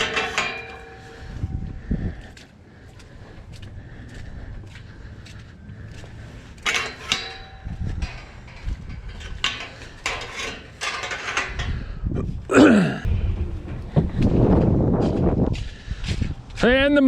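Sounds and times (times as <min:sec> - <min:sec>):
metal clanking and rattling: 0:00.0 - 0:01.8, 0:06.4 - 0:15.8.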